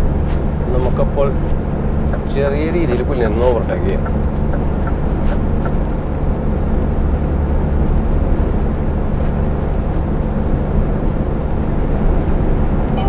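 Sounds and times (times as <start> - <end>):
diesel engine drone from cab: 0.0 - 13.0.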